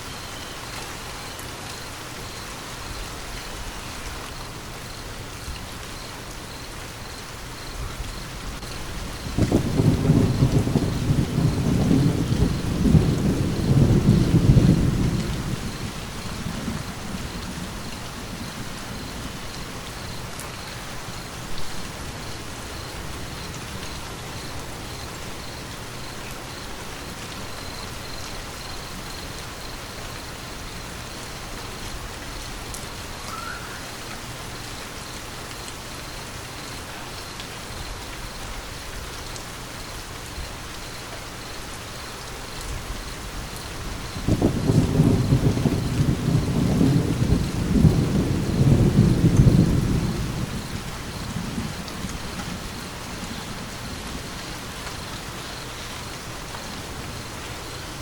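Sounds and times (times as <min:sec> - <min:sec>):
steady rain falling: 0:00.0 - 0:58.0
low rumble of thunder: 0:07.6 - 0:29.8, 0:42.5 - 0:58.0.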